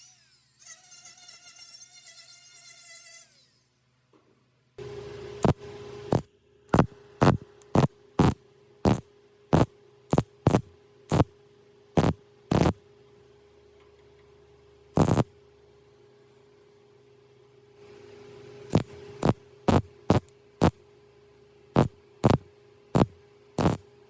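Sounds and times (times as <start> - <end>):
faint steady hum: 3.6 - 24.0
welder crackling bursts: 5.4 - 9.0, 9.6 - 11.3, 12.0 - 12.8, 15.0 - 15.3, 18.7 - 20.8, 21.8 - 22.4, 23.0 - 23.8.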